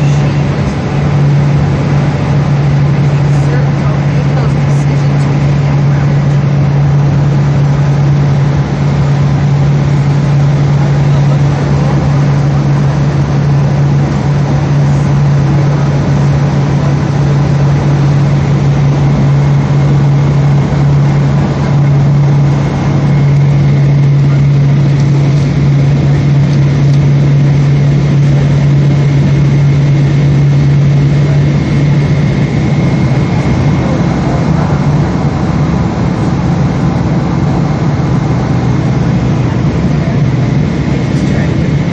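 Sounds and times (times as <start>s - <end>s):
airplane cabin engine drone: 0.0s - 41.9s.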